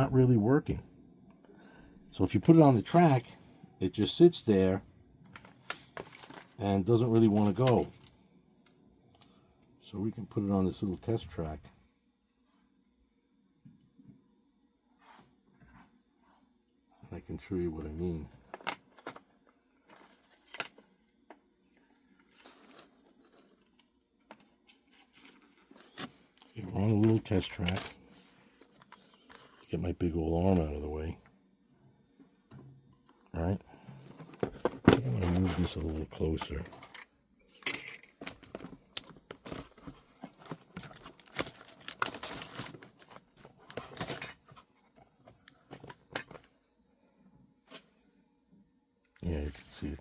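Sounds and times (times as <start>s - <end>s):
object handling clicks and rustles: 5.2s - 6.6s, 7.2s - 9.8s, 22.0s - 29.7s, 34.0s - 46.6s
hands rustling small objects: 34.6s - 44.6s.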